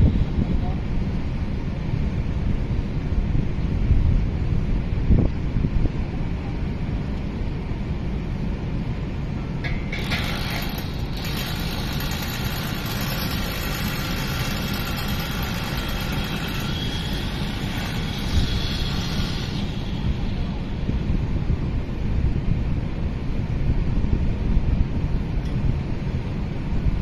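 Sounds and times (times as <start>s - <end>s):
wind buffeting microphone: 0.0s - 27.0s
machine whir: 9.6s - 21.1s.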